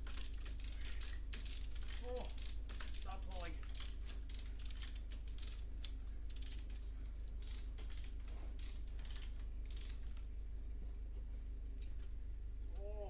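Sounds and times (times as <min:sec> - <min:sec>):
metallic clicks from hoist rigging: 0:00.0 - 0:10.3
steady low hum: 0:00.0 - 0:13.0.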